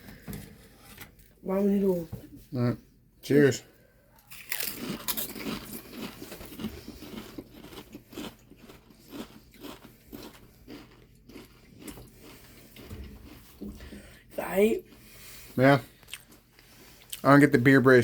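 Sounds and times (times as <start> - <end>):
crisps being crunched and chewed: 4.2 - 13.6, 16.0 - 16.4.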